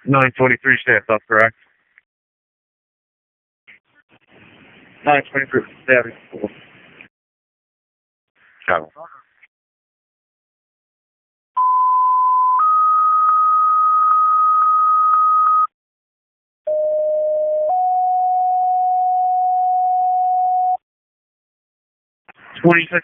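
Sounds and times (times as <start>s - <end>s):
two-tone radio paging tones: 11.6s - 15.7s.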